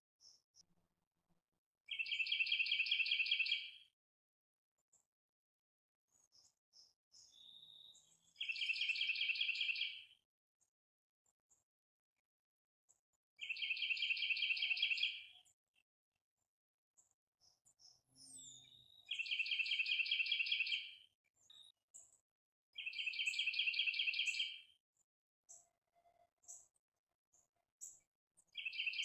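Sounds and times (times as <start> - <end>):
bird chirps: 1.9 - 3.8, 6.2 - 10.1, 13.4 - 15.5, 17.4 - 22.1, 22.8 - 24.7, 28.4 - 29.0
songbird singing: 1.9 - 3.8, 6.2 - 10.1, 13.4 - 15.5, 17.4 - 21.8, 22.8 - 24.7, 28.4 - 29.0.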